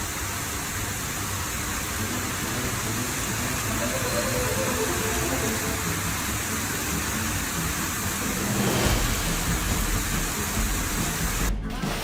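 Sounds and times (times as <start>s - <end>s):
heavy rain hiss: 0.0s - 11.5s
low rumble: 8.1s - 11.5s.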